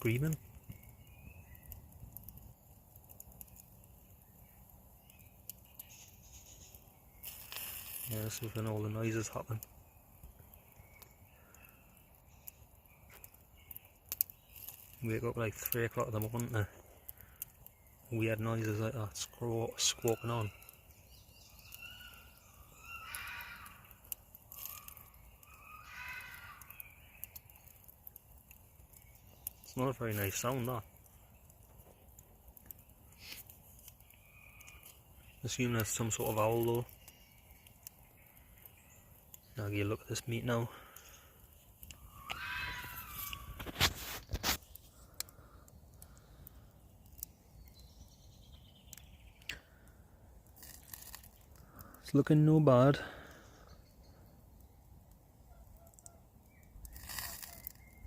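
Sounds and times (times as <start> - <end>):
faint crackles: 0.0 - 58.0
distant falling bird call: 16.0 - 52.0
owl screeching: 21.6 - 27.4, 41.9 - 44.2.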